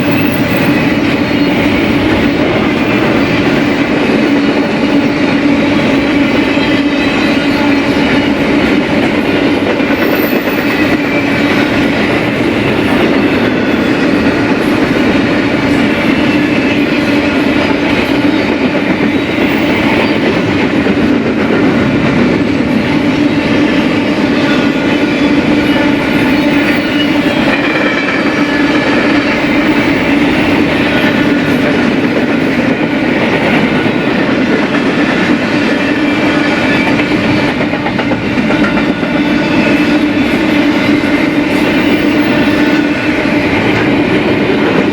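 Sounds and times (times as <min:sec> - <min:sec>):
freight train wheels on rails: 0:00.0 - 0:44.9.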